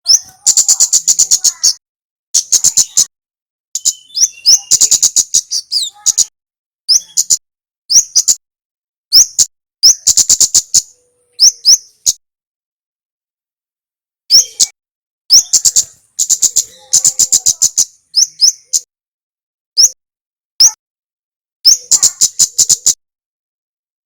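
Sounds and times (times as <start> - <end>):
bird calling in sharp chips: 0.1 - 1.8, 3.8 - 6.3, 21.7 - 23.0.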